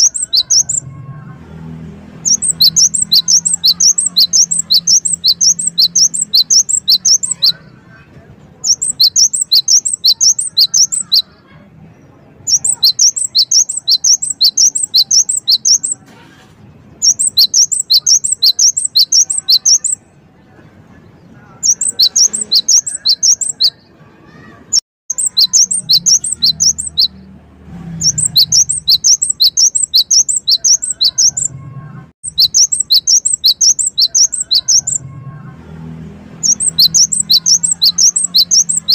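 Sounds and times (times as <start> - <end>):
bird singing sharp high notes: 0.0 - 0.9, 1.8 - 7.7, 8.6 - 11.4, 12.4 - 16.0, 17.0 - 20.2, 21.6 - 31.6, 32.2 - 35.1, 36.3 - 38.9.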